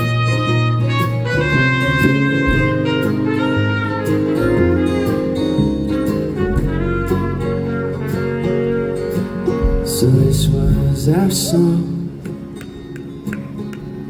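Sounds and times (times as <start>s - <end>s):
live band instrumental: 0.0s - 14.0s
drum strikes: 2.0s - 3.3s, 9.6s - 11.2s.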